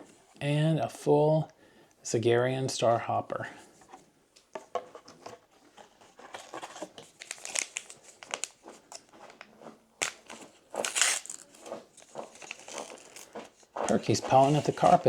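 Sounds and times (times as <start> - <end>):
foil pack crinkling: 6.4 - 15.0
foil pack tearing: 7.1 - 9.1, 10.0 - 15.0.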